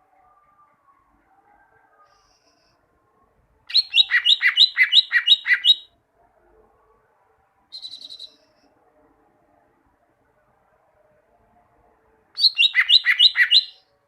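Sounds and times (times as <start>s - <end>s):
bird singing paired notes: 3.7s - 5.9s, 12.4s - 13.8s
bird rapid trill: 12.4s - 13.8s.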